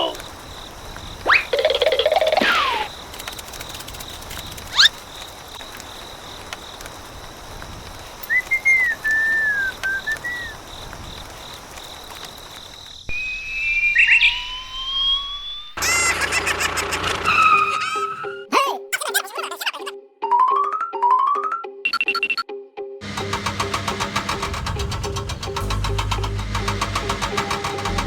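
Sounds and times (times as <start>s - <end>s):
steady hiss: 0.0s - 13.5s
whistle sound effects: 1.3s - 1.6s, 8.2s - 10.6s, 13.1s - 16.1s.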